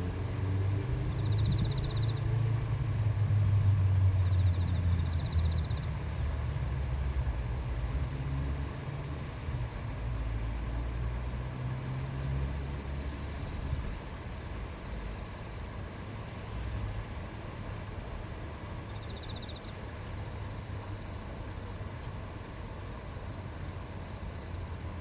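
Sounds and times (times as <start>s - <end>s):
river flowing: 6.0s - 25.0s.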